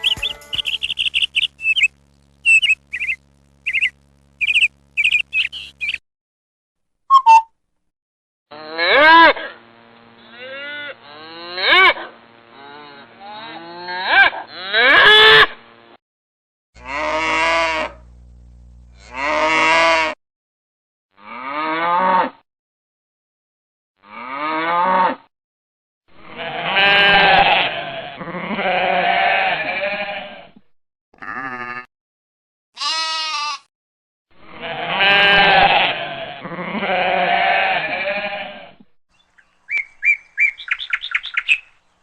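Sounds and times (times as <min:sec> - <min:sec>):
sheep bleating: 0:00.0 - 0:01.5, 0:10.2 - 0:15.5, 0:16.8 - 0:18.0, 0:18.9 - 0:20.2, 0:26.2 - 0:30.5, 0:31.2 - 0:31.9, 0:32.8 - 0:33.7, 0:34.4 - 0:38.8
cattle mooing: 0:16.8 - 0:18.0, 0:19.0 - 0:20.2, 0:31.2 - 0:31.9.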